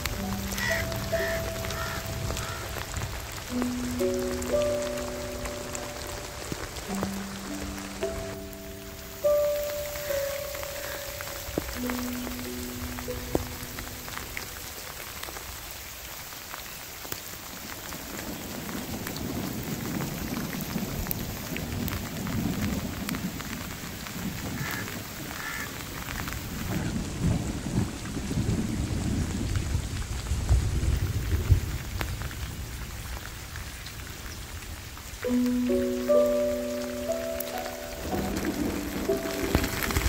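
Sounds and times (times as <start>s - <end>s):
steady rain falling: 0.0s - 40.0s
rolling thunder rumble: 26.3s - 33.2s, 36.6s - 40.0s.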